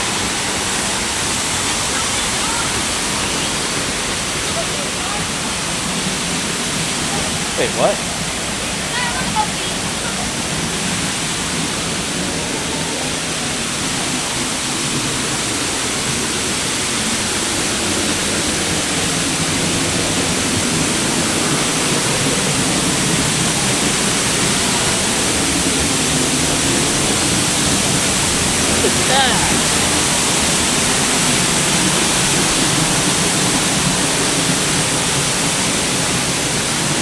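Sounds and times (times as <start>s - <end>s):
waterfall roaring: 0.0s - 37.0s.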